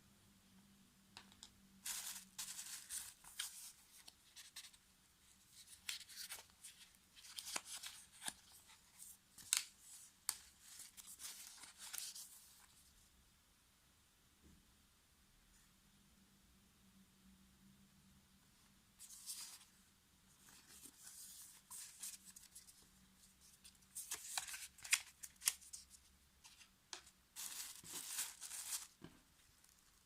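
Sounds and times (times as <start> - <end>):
packaging rustling and rasping: 27.4 - 29.0.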